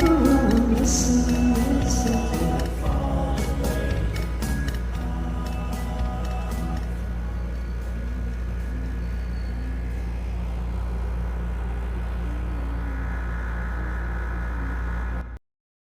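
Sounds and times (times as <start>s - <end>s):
karaoke backing track: 0.0s - 10.3s
low rumble: 0.0s - 15.4s.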